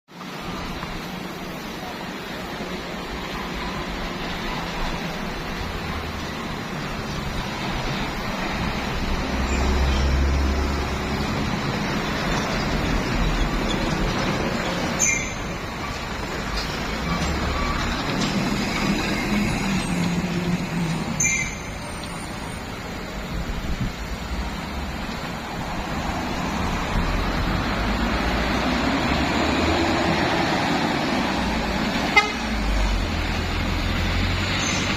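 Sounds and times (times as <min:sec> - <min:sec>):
truck engine rumbling: 0:00.1 - 0:34.9
steady rushing noise: 0:22.4 - 0:34.9.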